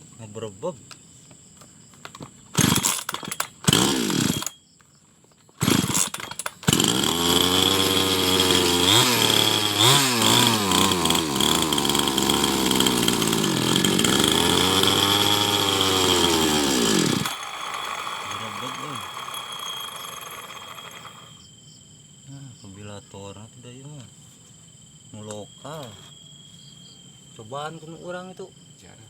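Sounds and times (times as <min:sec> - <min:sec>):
small petrol engine running rough: 0:05.6 - 0:21.3.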